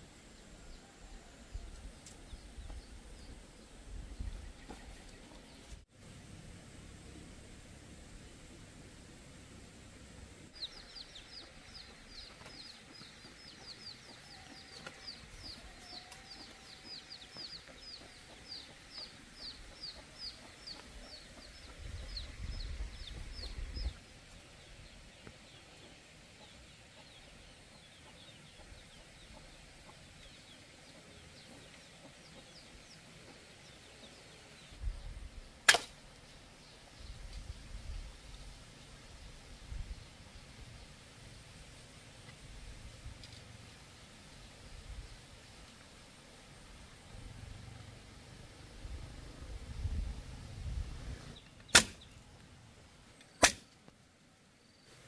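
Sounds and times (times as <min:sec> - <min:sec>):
machete striking wood: 0:35.7 - 0:36.0, 0:51.7 - 0:52.1, 0:53.4 - 0:53.8.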